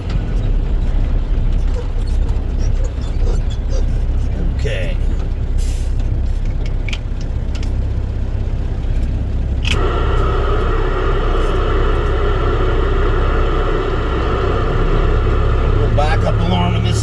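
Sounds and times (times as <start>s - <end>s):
truck engine rumbling: 0.0s - 17.0s
whining buzz of radio static: 9.7s - 17.0s.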